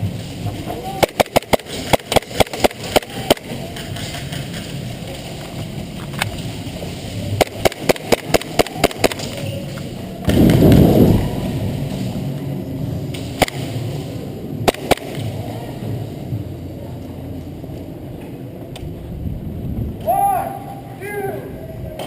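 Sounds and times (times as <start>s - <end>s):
loud low rumble: 10.0s - 22.0s
airsoft gun shots cracking: 14.6s - 15.2s.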